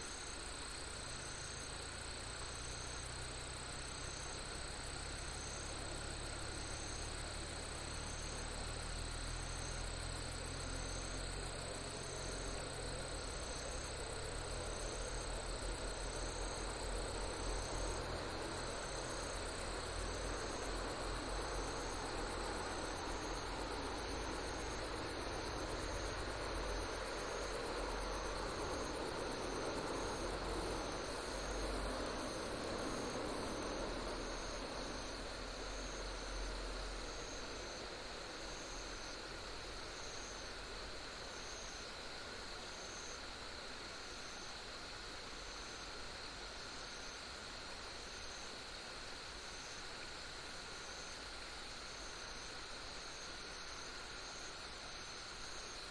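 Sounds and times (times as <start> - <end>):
insects trilling: 0.0 - 43.3
insect chirp: 0.0 - 55.9
steady hiss: 0.0 - 55.9.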